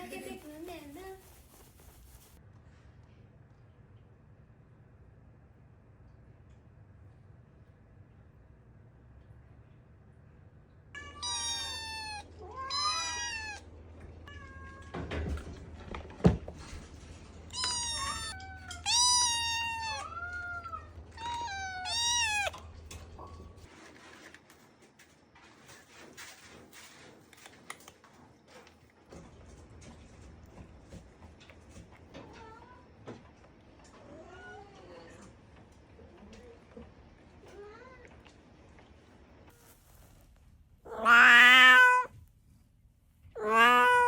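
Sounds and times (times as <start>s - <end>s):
cat meowing: 11.0s - 13.6s, 17.5s - 22.6s, 40.9s - 42.1s, 43.3s - 44.0s.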